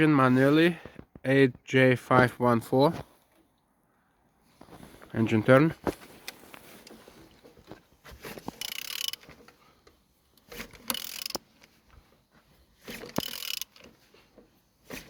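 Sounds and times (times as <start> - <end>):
engine turned over by hand: 7.3 - 9.6, 10.4 - 11.8, 12.8 - 15.0.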